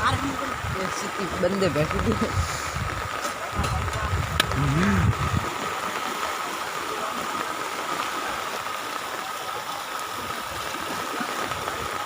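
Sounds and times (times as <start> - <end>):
steady rush of water: 0.0 - 12.0.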